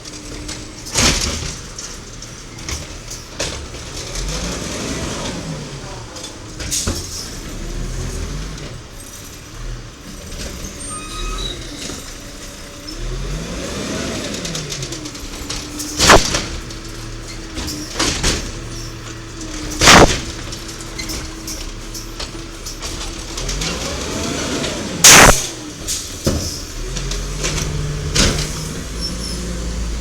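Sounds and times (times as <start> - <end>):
diesel truck engine revving: 3.6 - 30.0
loud bangs: 15.7 - 17.0, 19.6 - 21.2, 24.9 - 26.0.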